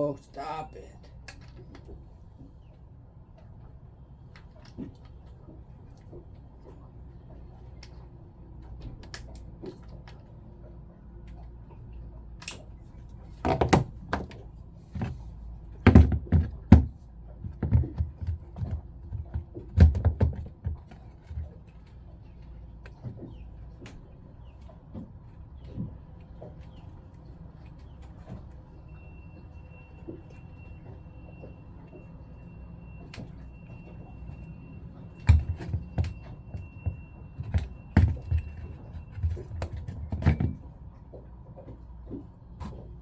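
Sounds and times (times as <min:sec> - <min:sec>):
low steady hum: 0:00.0 - 0:43.0
knocks and clatter of tools: 0:13.4 - 0:15.2, 0:15.8 - 0:21.6, 0:35.2 - 0:40.7.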